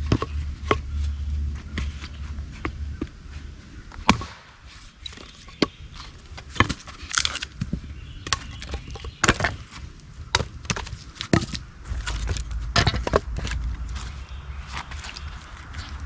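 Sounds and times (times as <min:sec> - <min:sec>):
wood splitting knocks and cracks: 0:04.0 - 0:15.9.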